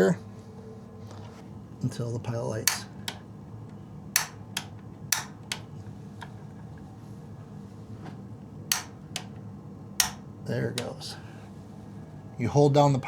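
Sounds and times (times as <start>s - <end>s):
steady low hum: 0.0s - 13.0s
pilot igniter clicking: 2.3s - 7.0s, 8.1s - 11.2s.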